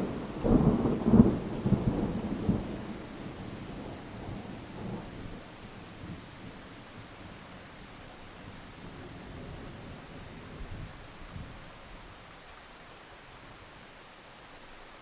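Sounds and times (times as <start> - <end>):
distant thunder rumbling: 0.0 - 7.1
rain hissing: 0.0 - 15.0.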